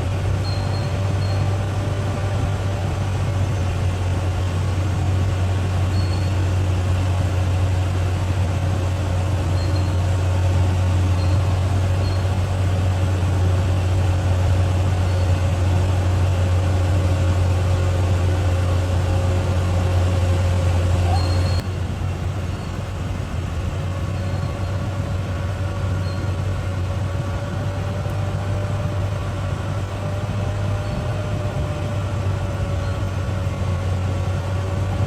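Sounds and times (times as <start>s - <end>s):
diesel engine droning: 0.0s - 35.0s.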